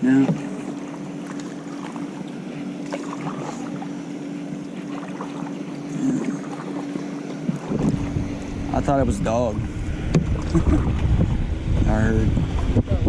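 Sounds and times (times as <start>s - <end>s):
steady low hum: 0.0s - 13.0s
water noise: 0.0s - 13.0s
paddle knocks and drips: 0.2s - 3.9s, 4.7s - 8.1s, 10.1s - 11.3s
wind on microphone: 7.5s - 13.0s.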